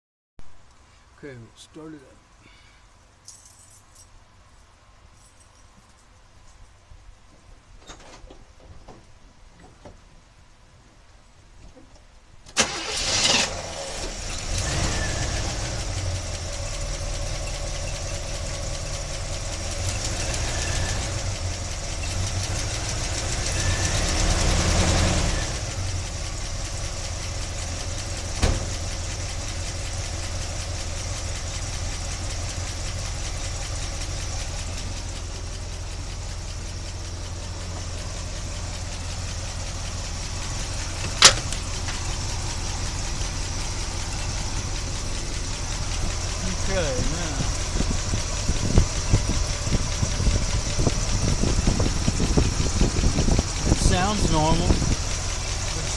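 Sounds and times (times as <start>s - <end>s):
engine starting and idling: 12.5s - 55.9s.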